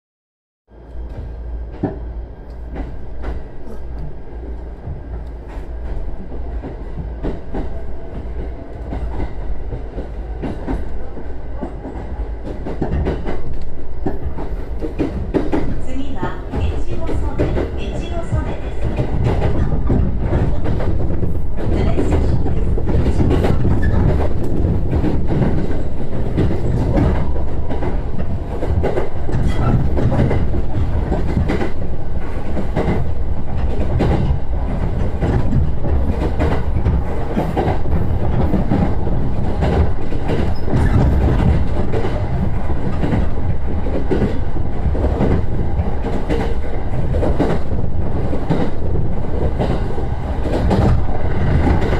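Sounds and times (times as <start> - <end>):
train rumbling: 0.7 - 51.9
wheels knocking on track: 11.6 - 51.9.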